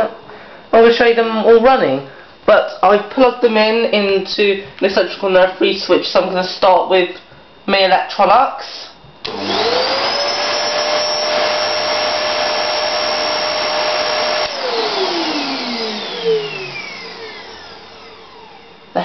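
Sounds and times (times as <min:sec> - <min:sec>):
vacuum cleaner motor whine: 0:09.2 - 0:19.0.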